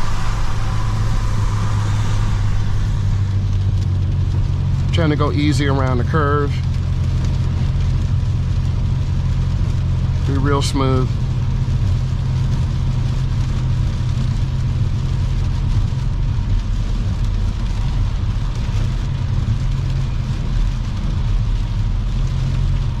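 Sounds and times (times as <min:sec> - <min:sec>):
tyre hiss on wet road: 0:00.0 - 0:05.0
car road rumble: 0:00.0 - 0:23.0.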